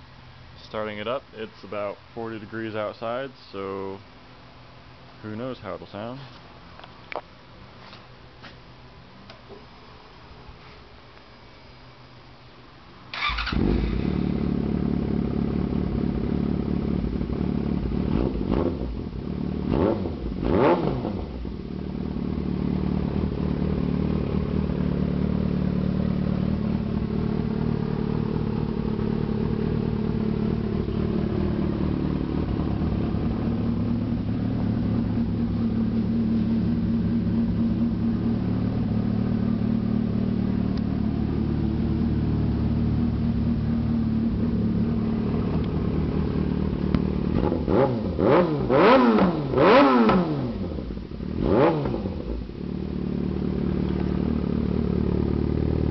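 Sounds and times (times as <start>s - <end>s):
motorcycle throttle blips: 13.1s - 55.9s
motorcycle engine idling: 13.2s - 20.4s, 21.1s - 49.0s, 52.1s - 55.9s.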